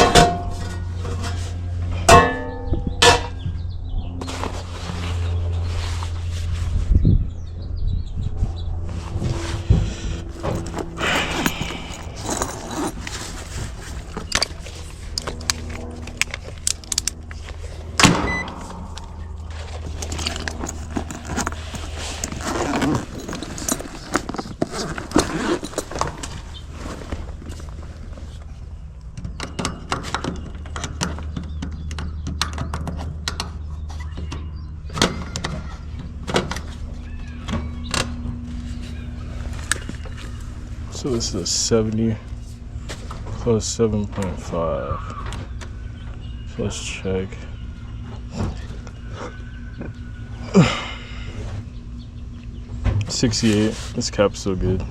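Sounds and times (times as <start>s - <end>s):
metal tools clinking and knocking: 0.0s - 1.4s, 10.3s - 17.3s, 18.3s - 26.6s
steady low hum: 0.0s - 54.9s.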